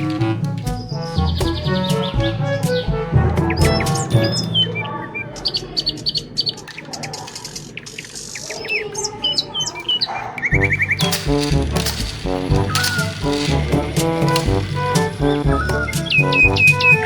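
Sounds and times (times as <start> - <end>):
music: 0.0 - 4.9, 10.5 - 17.0
birds chirping and whistling: 0.6 - 17.0.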